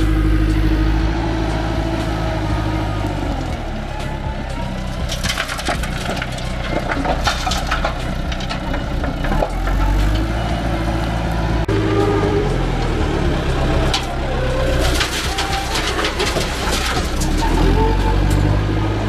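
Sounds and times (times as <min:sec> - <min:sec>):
heavy machine engine running: 0:00.0 - 0:19.0
crunching and cracking: 0:04.8 - 0:10.3, 0:13.9 - 0:18.4.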